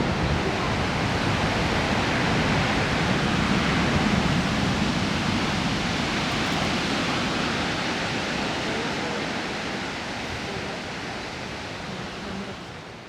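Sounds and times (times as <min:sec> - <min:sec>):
surf breaking against shore: 0:00.0 - 0:13.0.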